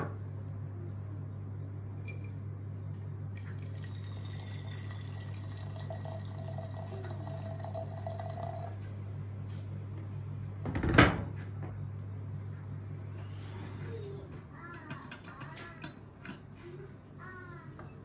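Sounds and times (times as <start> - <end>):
water running into vessel: 3.4 - 8.8.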